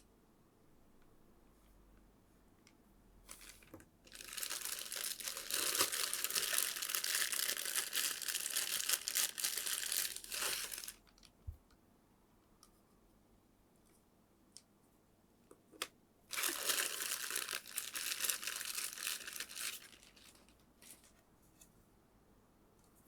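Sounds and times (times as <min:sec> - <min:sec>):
packaging crinkling: 0:03.3 - 0:11.2, 0:16.3 - 0:21.2.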